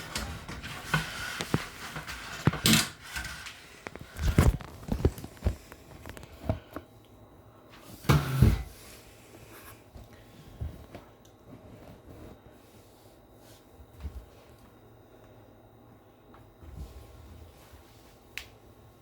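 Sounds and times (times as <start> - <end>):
washing machine knocking and thumping: 8.1 - 8.8.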